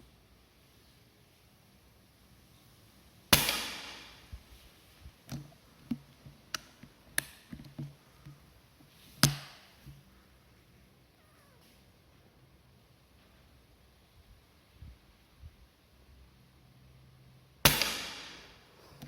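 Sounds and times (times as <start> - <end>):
air rifle shots: 3.3 - 4.5, 17.6 - 19.0.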